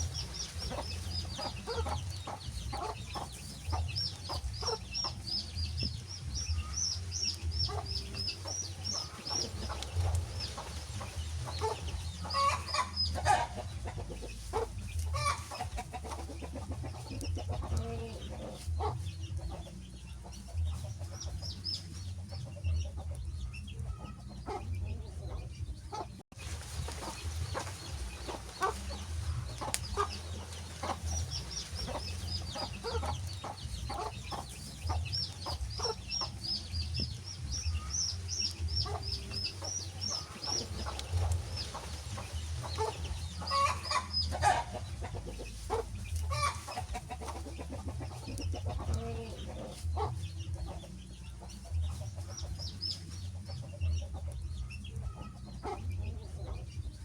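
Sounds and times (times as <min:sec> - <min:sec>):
wood fire crackling and popping: 0:08.8 - 0:11.5.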